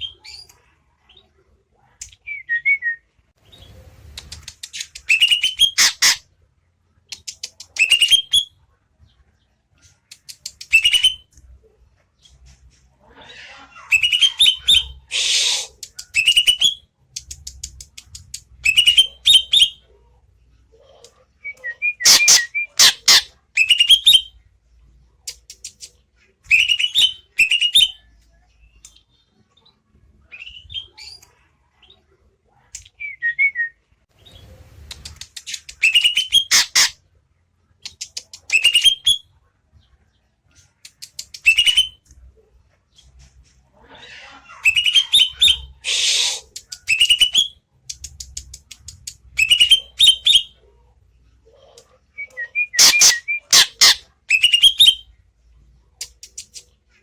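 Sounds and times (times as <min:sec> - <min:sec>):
bird singing clicking and whistled notes: 0:04.2 - 0:06.2, 0:07.1 - 0:08.4, 0:10.1 - 0:11.2, 0:34.9 - 0:36.9, 0:37.8 - 0:39.2, 0:40.8 - 0:42.0.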